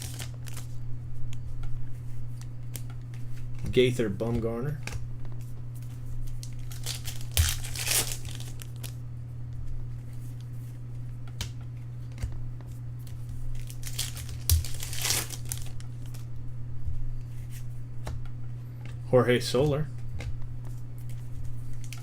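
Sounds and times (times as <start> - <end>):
wrappers tearing and crumpling: 0.0 - 0.8, 6.3 - 9.0, 13.0 - 16.3, 21.0 - 22.0
steady low hum: 0.0 - 22.0.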